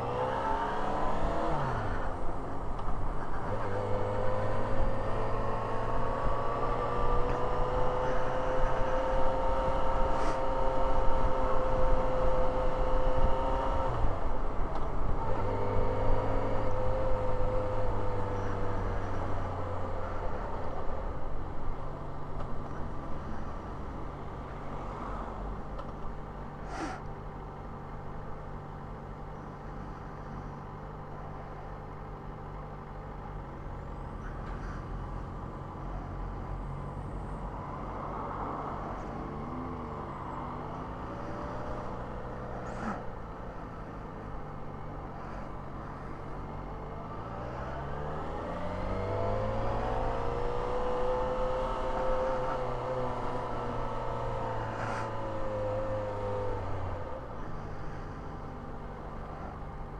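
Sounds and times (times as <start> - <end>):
motorcycle engine accelerating: 46.1 - 59.9.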